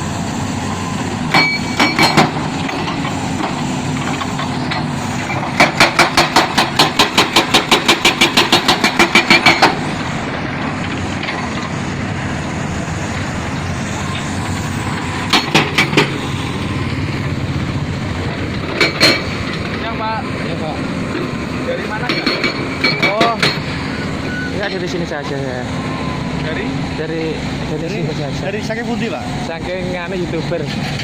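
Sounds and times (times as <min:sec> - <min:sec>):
construction machinery engine running: 0:00.0 - 0:31.0
rapid sharp knocks: 0:05.6 - 0:09.8.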